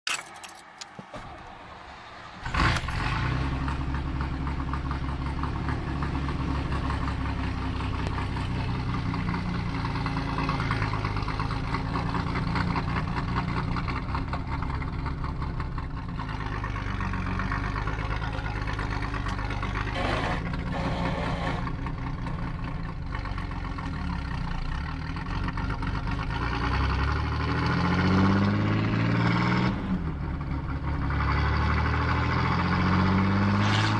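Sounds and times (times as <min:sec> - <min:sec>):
truck engine running and revving: 0:00.1 - 0:33.9
pickup engine starting with a bark: 0:17.6 - 0:25.3.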